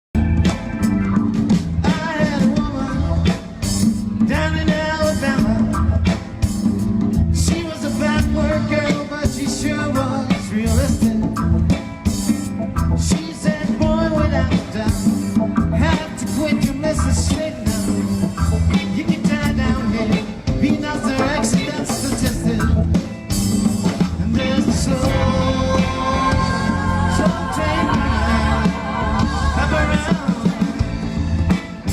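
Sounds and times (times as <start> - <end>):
reggae band playing live: 0.2 - 31.9
person singing: 13.0 - 22.9, 24.2 - 31.0.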